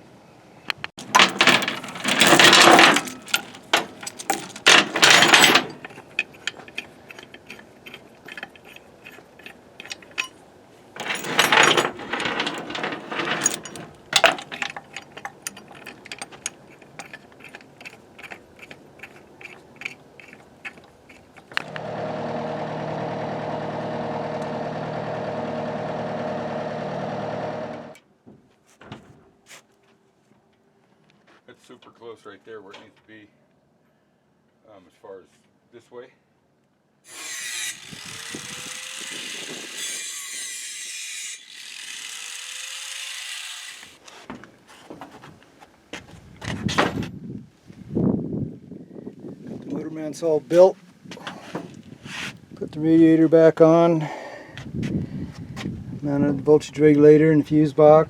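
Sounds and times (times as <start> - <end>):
hand tools clicking and knocking: 1.0 - 10.4, 11.0 - 21.7.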